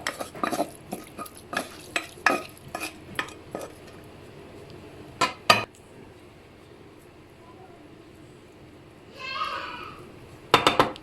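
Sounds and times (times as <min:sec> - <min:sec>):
spoon scraping a pot: 0:00.0 - 0:04.0.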